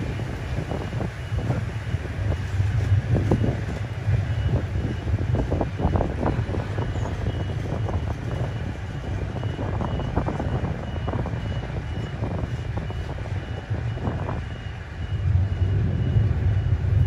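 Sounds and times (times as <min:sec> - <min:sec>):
low rumble of freight wagons: 0:00.0 - 0:17.0
wheels clattering on rails: 0:00.0 - 0:17.0
faint high beep: 0:04.2 - 0:17.0.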